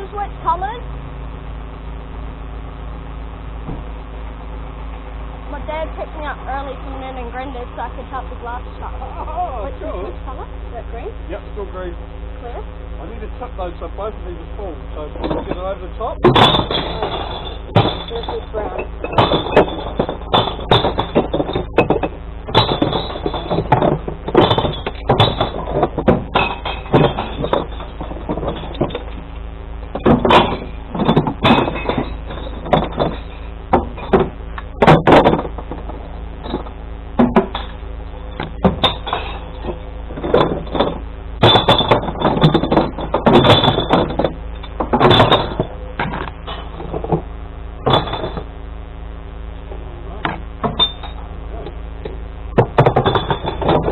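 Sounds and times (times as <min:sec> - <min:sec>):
truck engine hum: 0:00.0 - 0:53.9
glass bottles clinking and crashing: 0:15.2 - 0:15.6, 0:16.2 - 0:29.3, 0:29.9 - 0:48.5, 0:50.6 - 0:51.3, 0:52.6 - 0:53.9.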